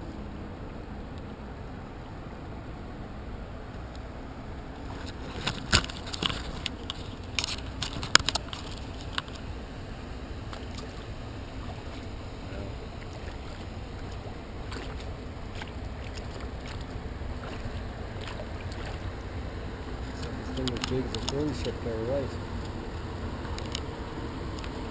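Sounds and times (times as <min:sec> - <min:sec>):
low rumble of water: 0:00.0 - 0:24.9
wind: 0:00.0 - 0:24.9
kayak paddle splashing: 0:04.7 - 0:21.8.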